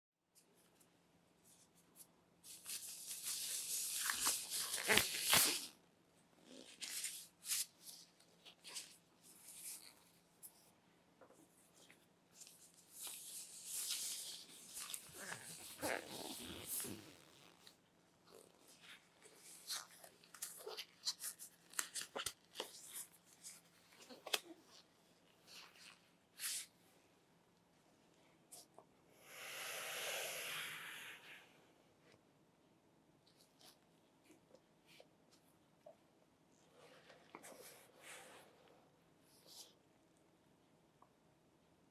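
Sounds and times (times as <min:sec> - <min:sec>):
packaging rustling and tearing: 0:02.5 - 0:05.7.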